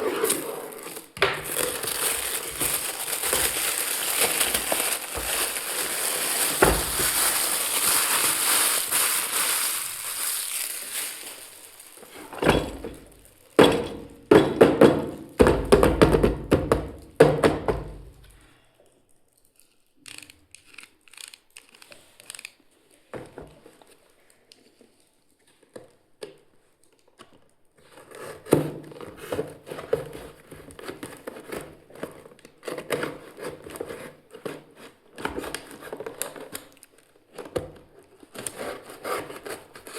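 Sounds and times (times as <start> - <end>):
packaging crinkling: 0.0 - 13.6.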